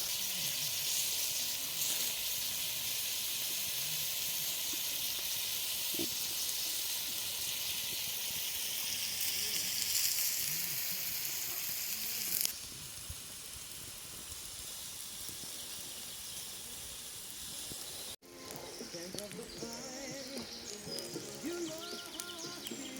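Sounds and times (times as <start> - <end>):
food sizzling on a grill: 0.0 - 22.9
birds chirping: 15.3 - 22.9.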